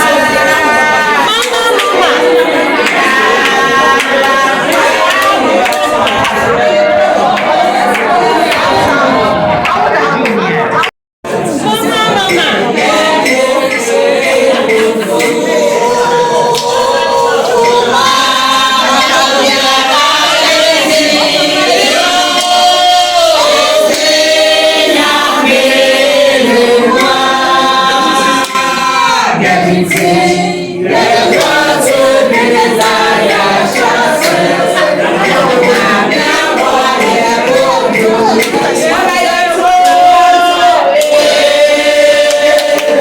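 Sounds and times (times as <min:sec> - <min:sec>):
group singing in unison: 0:00.0 - 0:43.0.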